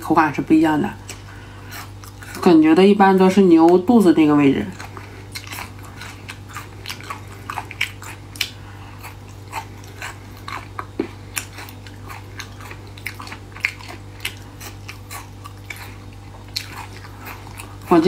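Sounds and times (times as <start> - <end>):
steady low hum: 0.0 - 18.0
crisp chewing clicks and crackles: 4.5 - 18.0.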